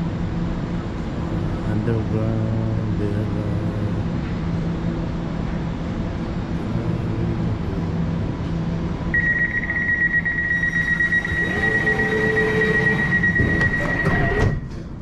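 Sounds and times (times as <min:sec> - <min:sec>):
train hum and rumble: 0:00.0 - 0:15.0
high door-warning beep: 0:09.2 - 0:14.7.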